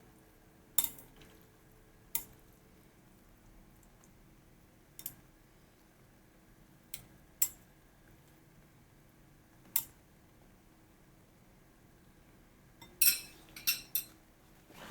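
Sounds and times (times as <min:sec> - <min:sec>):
kitchenware clinking: 0:12.8 - 0:14.2.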